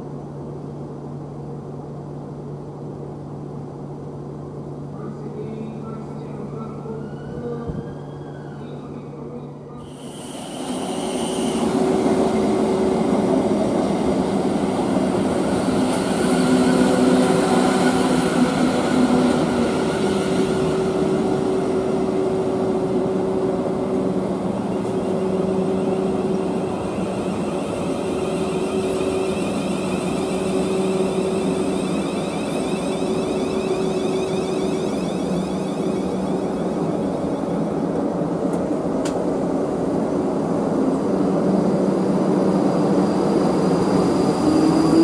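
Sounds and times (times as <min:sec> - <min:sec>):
train humming tones: 0:00.0 - 0:45.0
train wheels rumbling on rails: 0:09.8 - 0:45.0.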